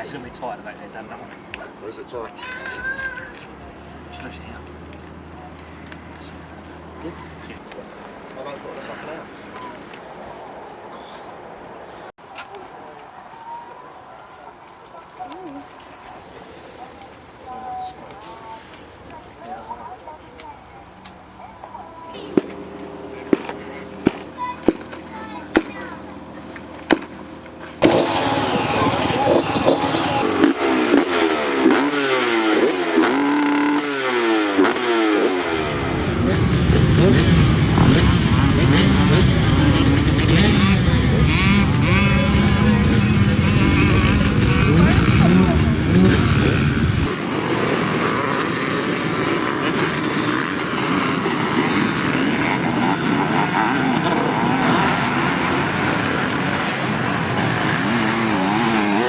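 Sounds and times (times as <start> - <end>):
motocross bike engine revving: 22.2 - 59.0.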